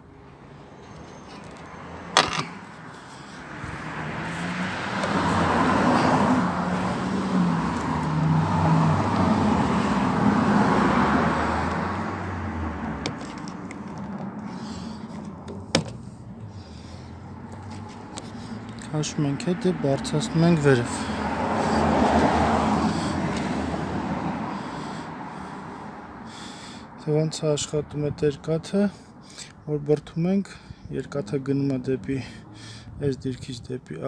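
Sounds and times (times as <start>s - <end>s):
car passing by: 0.4s - 15.4s, 16.0s - 26.6s.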